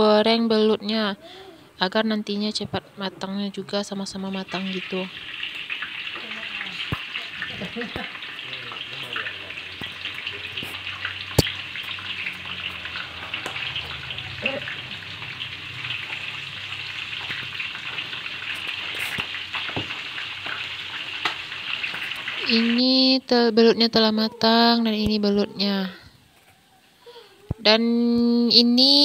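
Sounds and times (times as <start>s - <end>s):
fish sizzling in hot oil: 3.9s - 23.4s.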